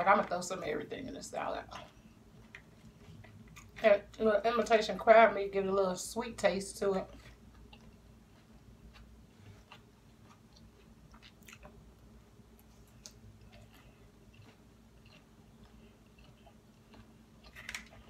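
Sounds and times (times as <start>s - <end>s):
faint chewing of salad: 1.6s - 4.2s, 7.0s - 18.0s.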